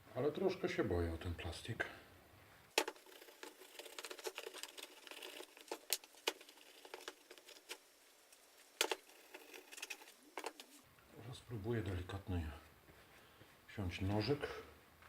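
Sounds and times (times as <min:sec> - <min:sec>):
brush scrubbing plastic: 0:02.8 - 0:10.8.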